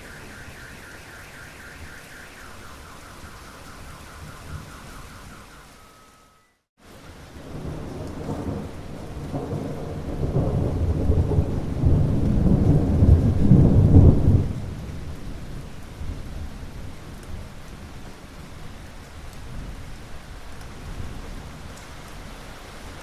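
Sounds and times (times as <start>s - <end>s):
rolling thunder rumble: 0.0s - 5.8s, 7.4s - 17.0s
rain: 0.0s - 23.0s.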